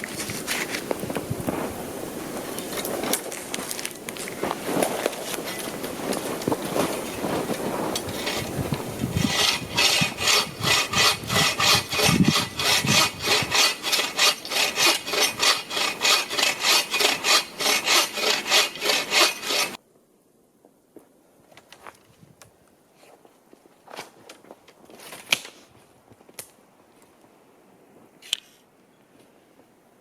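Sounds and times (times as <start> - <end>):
hand saw cutting wood: 6.7 - 19.8.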